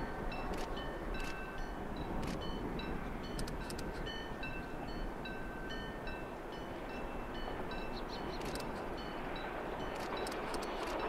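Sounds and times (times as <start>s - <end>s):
distant train rumble: 0.0s - 11.0s
sharp clicks: 3.4s - 3.9s, 8.4s - 8.8s, 10.0s - 11.0s.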